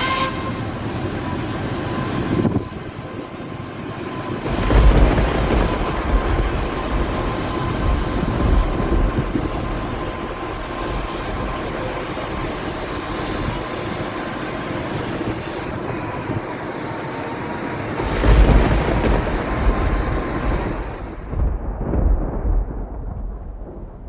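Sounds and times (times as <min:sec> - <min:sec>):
thin constant tone: 0:00.0 - 0:21.2
low rumble: 0:04.4 - 0:13.8, 0:18.0 - 0:24.0.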